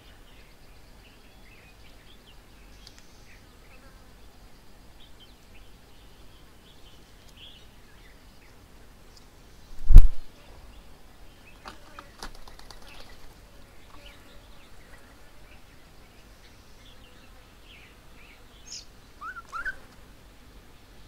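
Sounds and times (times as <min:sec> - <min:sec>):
birds chirping: 0:00.0 - 0:20.0
rising bird calls: 0:18.6 - 0:19.9.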